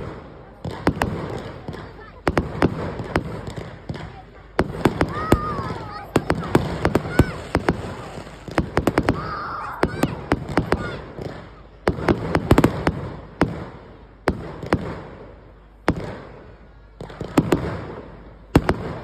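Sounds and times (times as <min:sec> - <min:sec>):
fireworks bangs: 0:00.0 - 0:19.0.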